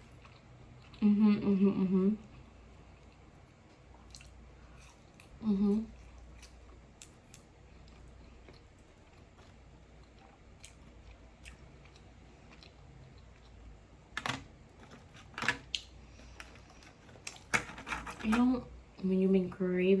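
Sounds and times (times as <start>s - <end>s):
crunching food: 0.0s - 1.0s, 2.9s - 18.3s
quiet chewing clicks: 2.2s - 13.7s.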